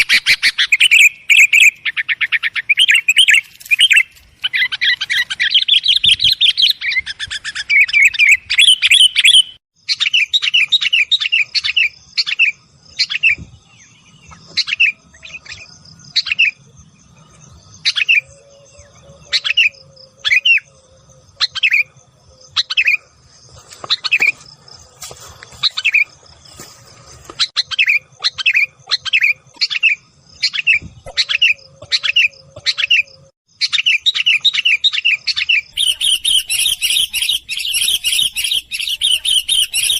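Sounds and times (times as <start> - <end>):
bulbul calls: 27.4 - 39.9.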